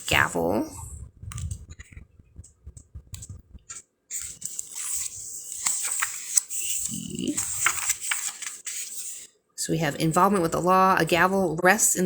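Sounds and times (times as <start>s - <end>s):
paper pages rustling: 1.3s - 9.3s.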